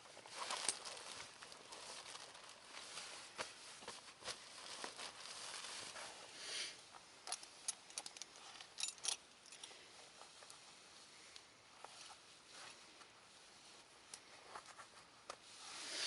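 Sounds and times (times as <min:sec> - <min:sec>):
crinkling rustle: 0:00.0 - 0:06.4.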